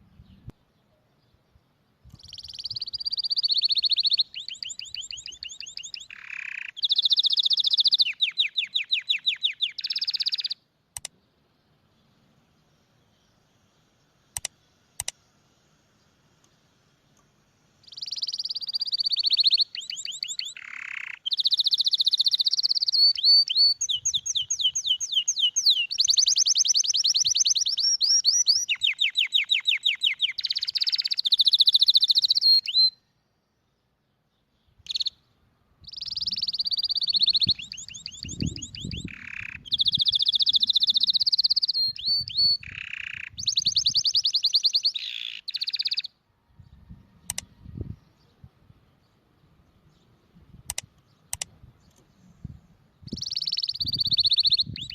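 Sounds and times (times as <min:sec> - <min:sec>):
canary singing trills: 0:02.1 - 0:10.6, 0:17.8 - 0:33.1, 0:34.6 - 0:52.4, 0:53.0 - 0:54.9
short clicks: 0:10.9 - 0:11.2, 0:14.3 - 0:15.2, 0:47.2 - 0:47.5, 0:50.6 - 0:52.1.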